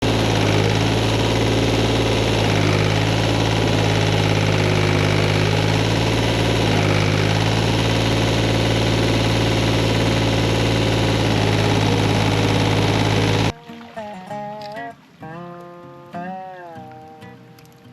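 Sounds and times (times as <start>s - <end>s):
tractor engine running: 0.0s - 13.6s.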